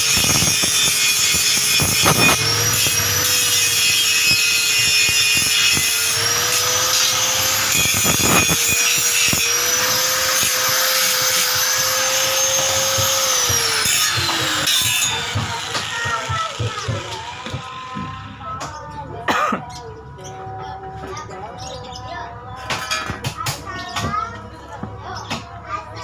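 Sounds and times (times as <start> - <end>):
small electric motor whining: 0.0 - 18.5.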